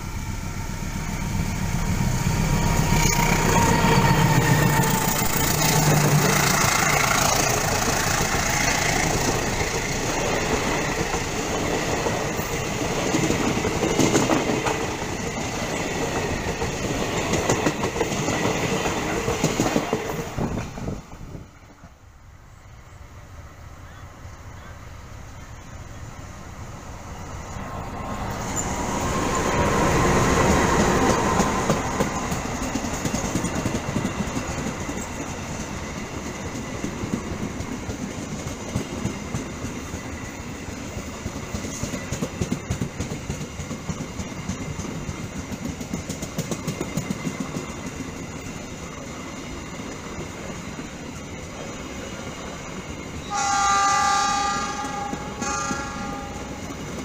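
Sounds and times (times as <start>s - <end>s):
locomotive passing: 0.0s - 57.0s
train horn: 2.4s - 6.6s, 53.2s - 56.7s
wheels clicking over rail joints: 2.9s - 20.9s, 30.3s - 53.4s.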